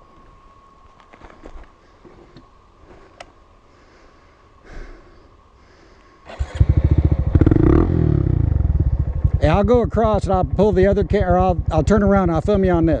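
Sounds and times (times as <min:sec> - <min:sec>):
faint steady hum: 0:00.0 - 0:13.0
motorcycle engine starting and revving: 0:06.3 - 0:13.0.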